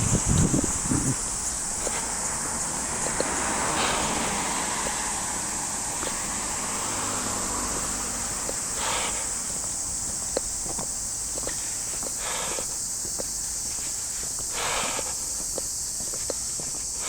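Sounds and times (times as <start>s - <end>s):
high-pitched hiss: 0.0s - 17.0s
faint ticks: 9.6s - 14.5s.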